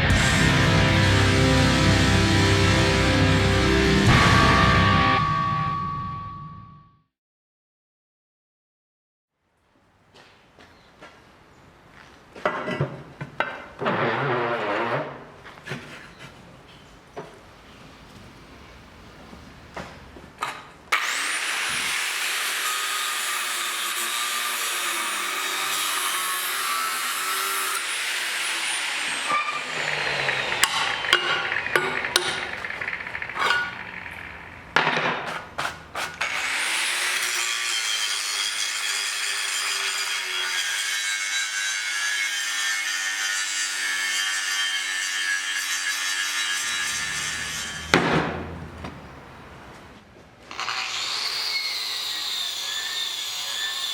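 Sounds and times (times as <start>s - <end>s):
power saw cutting: 0.0s - 5.3s, 20.9s - 34.7s, 35.3s - 48.7s, 50.5s - 53.9s
thump: 47.9s - 49.0s.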